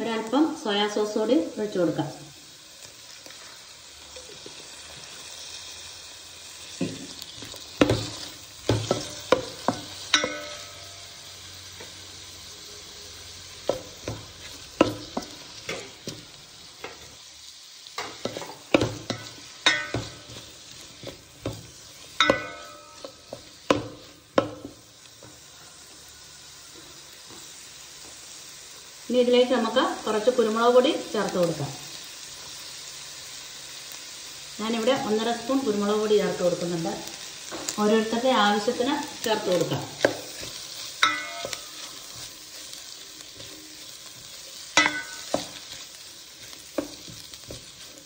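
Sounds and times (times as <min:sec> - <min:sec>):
food sizzling in a pan: 0:00.0 - 0:48.0
spatula knocking and scraping pan: 0:06.8 - 0:10.9, 0:13.6 - 0:17.1, 0:18.0 - 0:25.4, 0:39.3 - 0:48.0.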